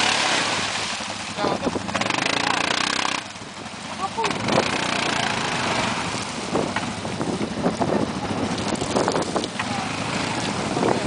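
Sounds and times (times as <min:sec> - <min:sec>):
quad bike engine running: 0:00.0 - 0:11.0
wind buffeting microphone: 0:00.5 - 0:02.1, 0:05.7 - 0:11.0.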